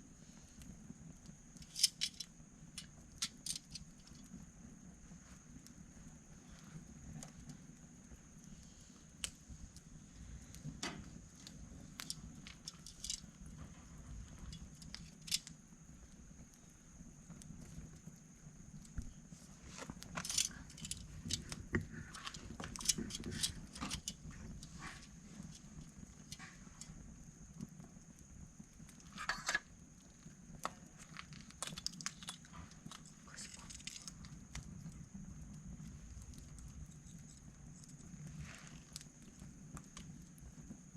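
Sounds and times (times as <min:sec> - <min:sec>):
firewood clattering with metal tongs: 0:01.6 - 0:04.4, 0:10.8 - 0:15.6, 0:19.7 - 0:27.0, 0:29.0 - 0:29.8, 0:30.6 - 0:34.7.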